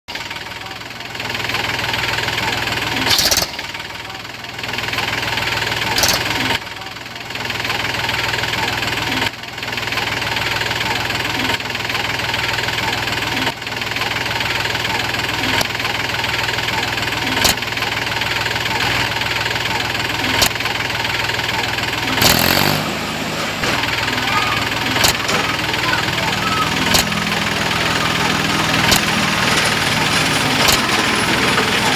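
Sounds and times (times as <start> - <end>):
tractor engine running: 0.0 - 31.9
sharp clicks: 20.3 - 20.6, 24.8 - 25.8, 26.7 - 27.6, 28.7 - 31.1.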